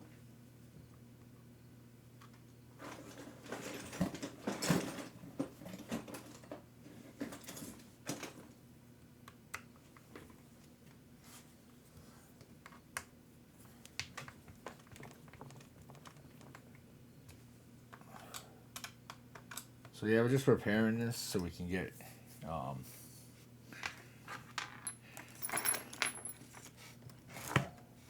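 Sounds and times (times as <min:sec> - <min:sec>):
tools clicking and rattling: 0:24.4 - 0:26.7.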